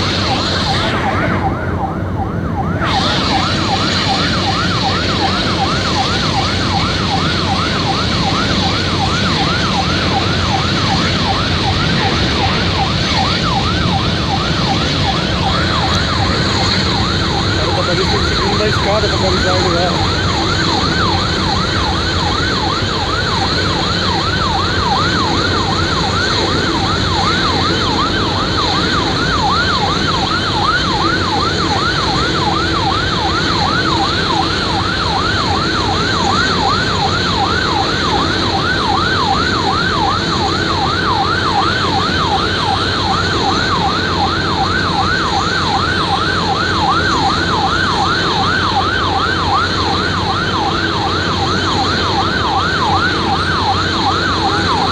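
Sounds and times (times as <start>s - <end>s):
broad rushing noise: 0.0s - 54.9s
fire truck siren yelping: 0.0s - 54.9s.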